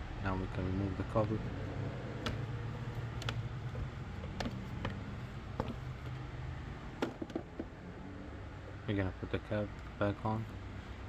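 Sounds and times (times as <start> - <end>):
steady low hum: 0.0 - 11.0
engine cover clicks and knocks: 1.1 - 6.2, 6.9 - 7.7.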